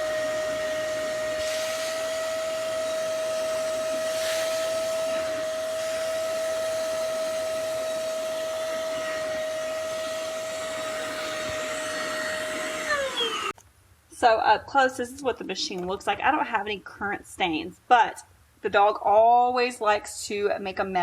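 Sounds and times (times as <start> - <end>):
spot cleaner suction motor whining: 0.0 - 13.6.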